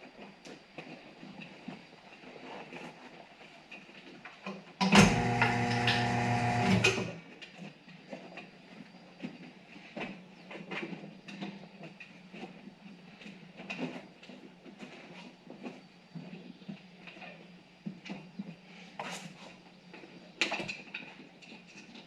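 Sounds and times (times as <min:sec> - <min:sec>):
electric motor humming: 0:04.8 - 0:07.2.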